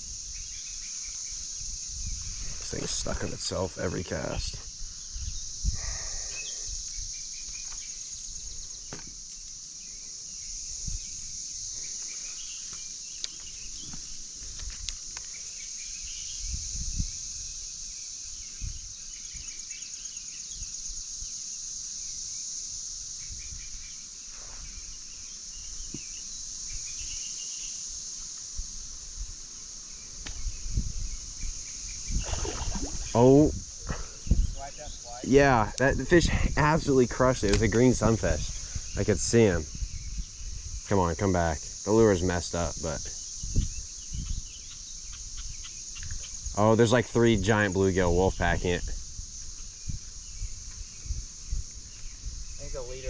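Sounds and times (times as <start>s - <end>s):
wind on microphone: 0.0s - 3.6s, 4.3s - 7.2s, 16.1s - 17.6s, 18.4s - 19.4s, 30.2s - 40.9s, 43.4s - 46.5s, 48.3s - 53.0s
cicada chorus drone: 0.0s - 53.0s.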